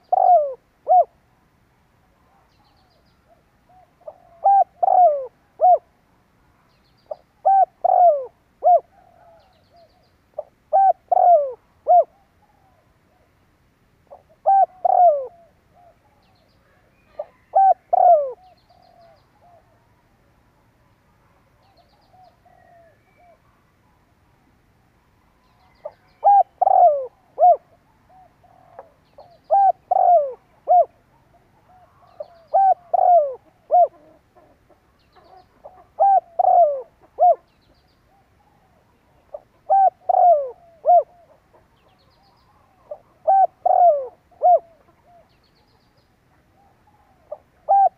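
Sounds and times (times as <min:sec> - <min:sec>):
dove cooing: 0:00.0 - 0:01.2, 0:03.2 - 0:05.9, 0:07.1 - 0:13.3, 0:14.1 - 0:19.8, 0:25.6 - 0:37.5, 0:38.1 - 0:45.4, 0:46.6 - 0:47.9.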